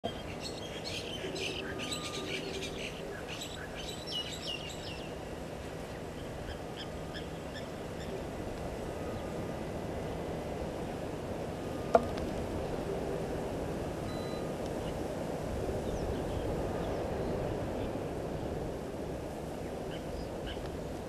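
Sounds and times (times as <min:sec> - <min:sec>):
birds calling and chirping: 0:00.0 - 0:08.3
steady low background noise: 0:00.0 - 0:21.0.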